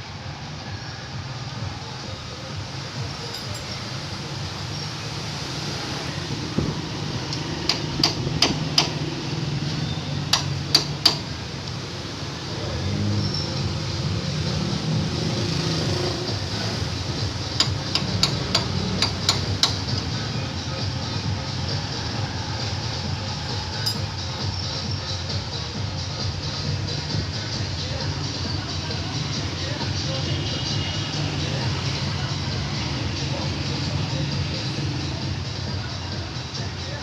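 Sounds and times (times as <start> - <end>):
steady background noise: 0.0 - 37.0
hammer tapping: 7.3 - 9.1, 10.3 - 11.3, 17.6 - 20.0.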